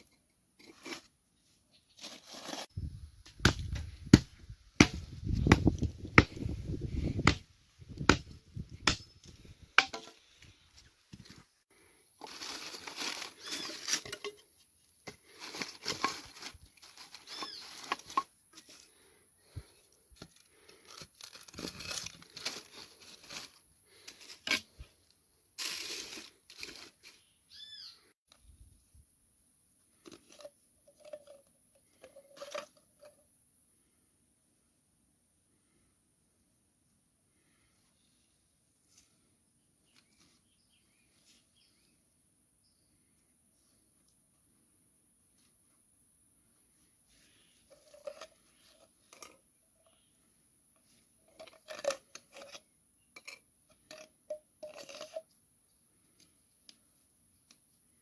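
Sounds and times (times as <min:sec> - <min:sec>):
objects clinking and knocking: 0:53.2 - 0:55.3.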